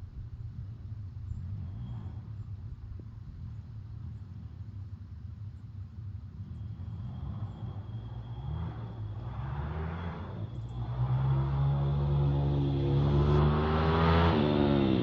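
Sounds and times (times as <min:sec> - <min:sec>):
motorbike engine revving: 0:08.2 - 0:15.0.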